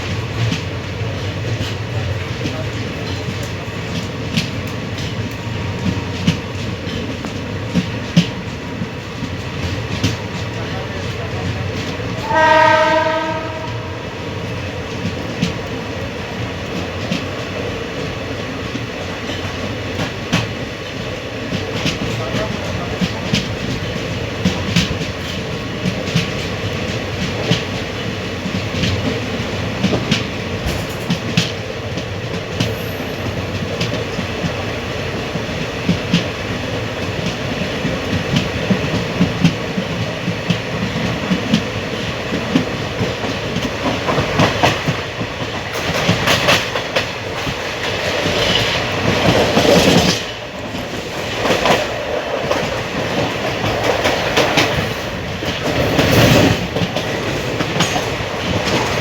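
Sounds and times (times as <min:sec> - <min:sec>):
train wheels rumbling on rails: 0:00.0 - 0:59.0
wheels clicking over rail joints: 0:14.5 - 0:59.0.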